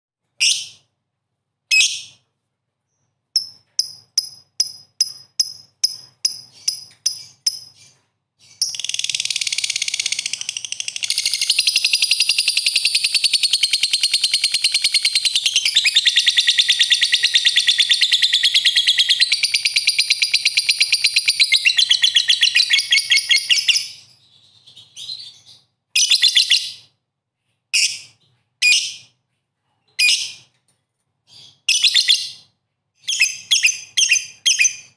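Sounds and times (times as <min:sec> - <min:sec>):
songbird calling and singing: 0:02.9 - 0:26.9.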